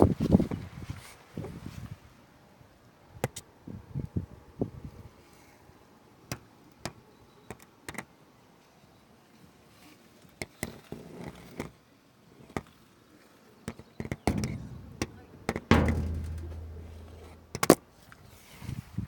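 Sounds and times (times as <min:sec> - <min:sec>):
loud knock with low ring: 0:14.3 - 0:17.7.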